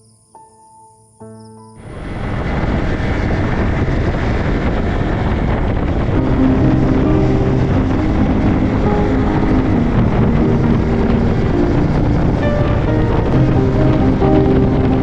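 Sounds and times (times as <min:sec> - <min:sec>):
wind rushing over microphone: 0:01.8 - 0:15.0.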